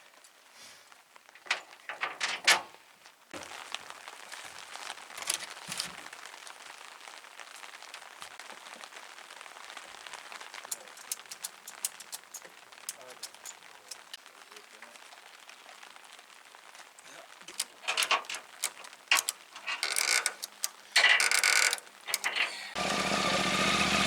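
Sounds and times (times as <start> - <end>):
rain pattering: 0.0 - 24.0.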